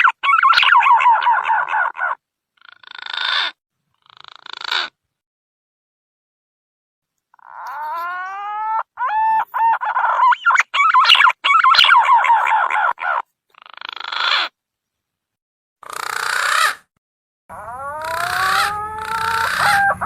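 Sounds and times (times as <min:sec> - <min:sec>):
pigeon whistling song: 0:00.0 - 0:01.4, 0:09.0 - 0:12.6, 0:17.6 - 0:20.0.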